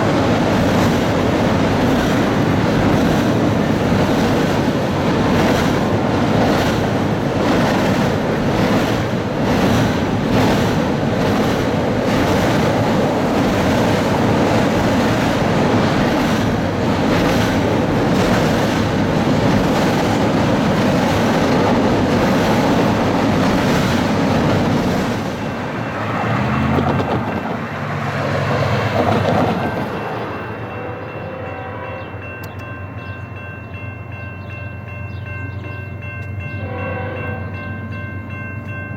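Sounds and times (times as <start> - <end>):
wheels clattering over rail joints: 0.0 - 30.4
train rolling past: 0.0 - 38.9.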